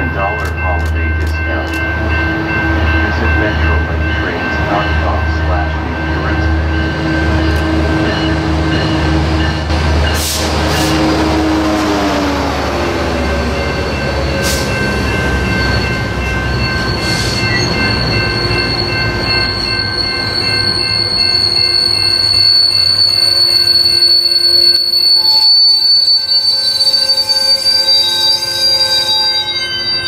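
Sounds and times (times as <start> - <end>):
diesel locomotive engine rumble: 0.0 - 29.2
high-pitched train squeals: 12.8 - 30.0.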